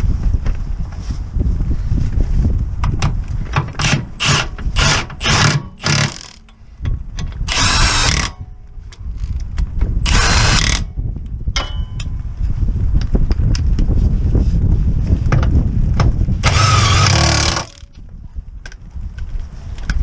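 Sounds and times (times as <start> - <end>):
power tool running: 3.8 - 6.4, 7.5 - 8.4, 10.1 - 10.9, 16.4 - 17.9.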